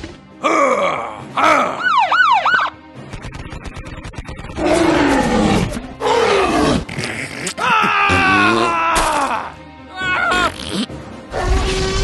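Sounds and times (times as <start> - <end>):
dinosaur roars: 4.6 - 6.9.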